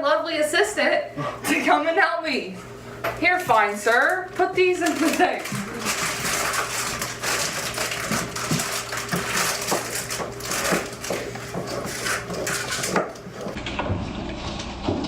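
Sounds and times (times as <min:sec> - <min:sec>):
paper liners crinkling: 0:03.6 - 0:13.6.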